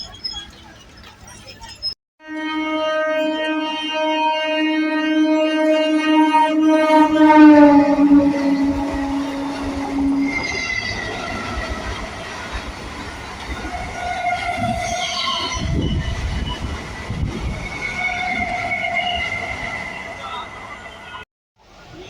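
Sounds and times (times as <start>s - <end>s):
train wheels squealing on rails: 0.0s - 2.0s, 8.3s - 21.2s
wheels clattering over rail joints: 0.0s - 2.0s, 8.7s - 18.6s
train horn: 2.2s - 12.8s, 13.4s - 21.2s.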